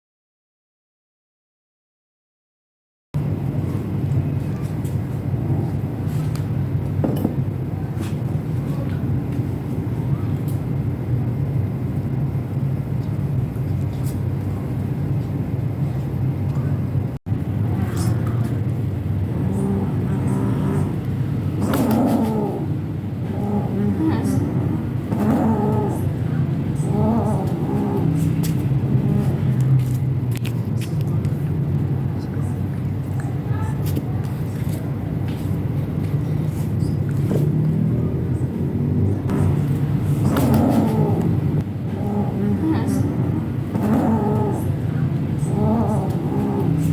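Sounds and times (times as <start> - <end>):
background traffic rumble: 3.2 - 46.9
faint voices: 7.0 - 12.1, 16.2 - 46.9.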